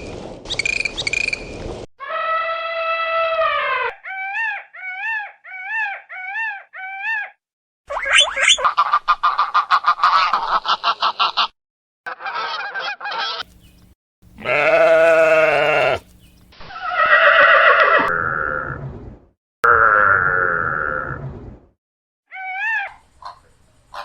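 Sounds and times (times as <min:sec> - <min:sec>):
long pitched animal calls: 0:14.4 - 0:16.0.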